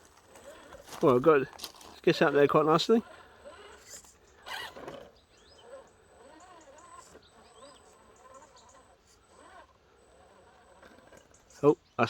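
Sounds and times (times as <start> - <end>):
toy car electric motor whining: 0.0 - 11.8
scuffing rustle: 0.1 - 2.0.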